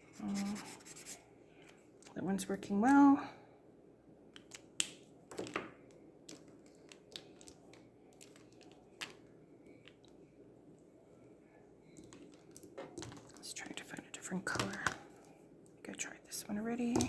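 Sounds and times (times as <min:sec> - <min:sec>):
marker scratching: 0:00.1 - 0:01.2.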